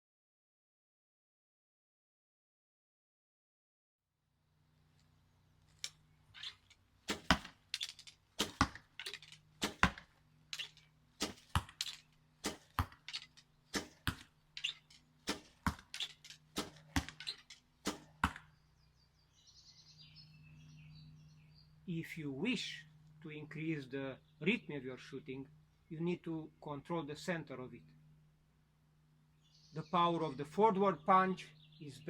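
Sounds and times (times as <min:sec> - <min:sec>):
bowstring snapping arrows: 0:05.0 - 0:18.5.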